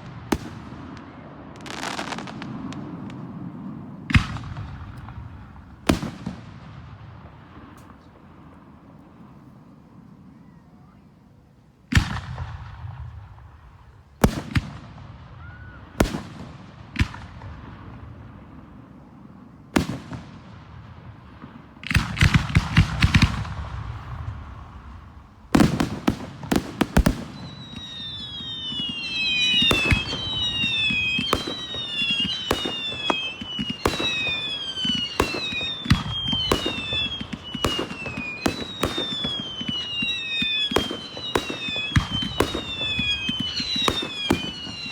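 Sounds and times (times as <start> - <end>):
fireworks crackling: 0.0 - 10.3, 11.8 - 44.9
firework whistles falling in pitch: 27.0 - 44.9.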